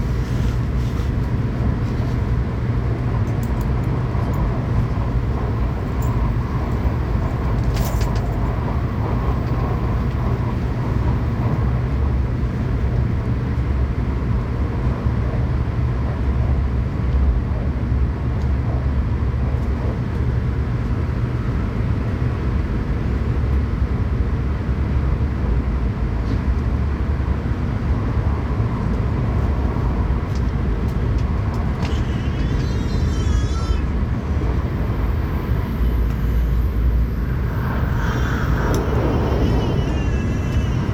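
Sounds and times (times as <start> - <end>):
train cabin rumble and hiss: 0.0 - 40.9
wavering high-pitched whine: 34.6 - 40.9.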